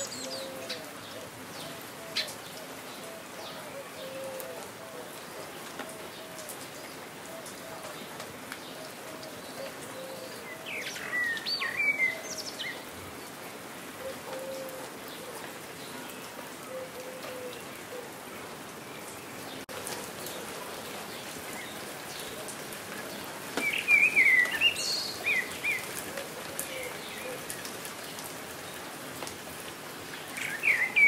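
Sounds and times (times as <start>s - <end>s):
steady rain: 0.0s - 31.0s
birds chirping: 14.0s - 28.8s, 30.0s - 31.0s.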